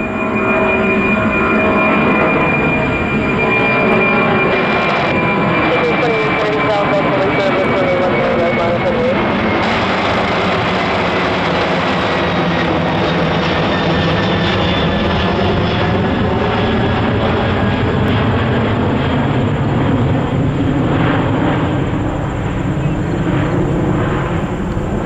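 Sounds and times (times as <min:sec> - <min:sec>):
faint high whine falling in pitch: 0:00.0 - 0:10.7, 0:21.6 - 0:25.0
jet engines running loud: 0:00.0 - 0:25.0.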